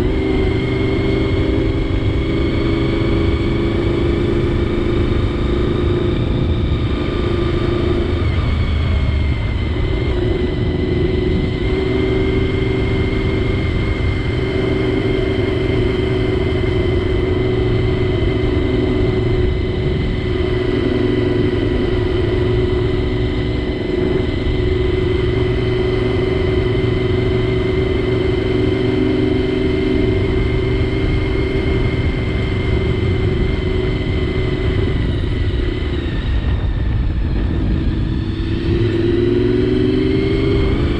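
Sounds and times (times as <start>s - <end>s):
motorcycle engine cruising: 0.0s - 40.9s
wind rush: 0.0s - 40.9s.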